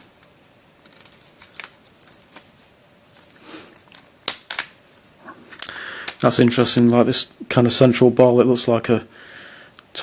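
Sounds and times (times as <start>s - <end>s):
plastic puzzle clicks: 3.8s - 4.8s.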